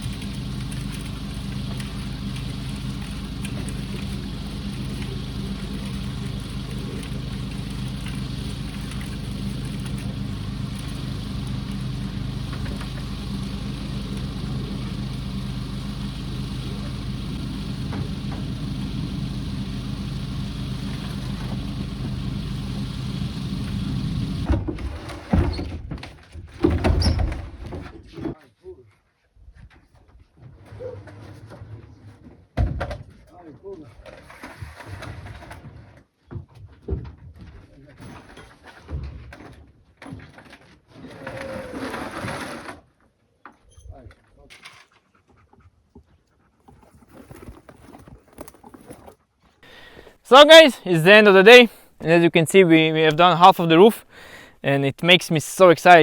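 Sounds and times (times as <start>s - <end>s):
engine humming steadily: 0.0s - 24.6s, 49.6s - 56.0s.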